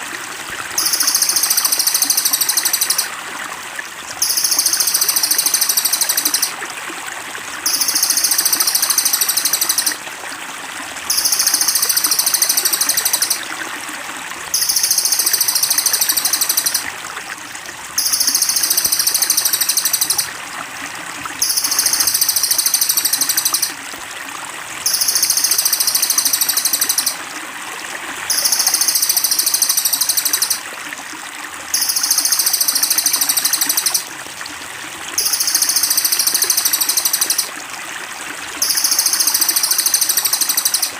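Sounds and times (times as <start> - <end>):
trickling water: 0.0 - 40.9
bird buzzing trill: 0.8 - 3.0, 7.7 - 10.0, 14.6 - 16.8, 18.0 - 20.2.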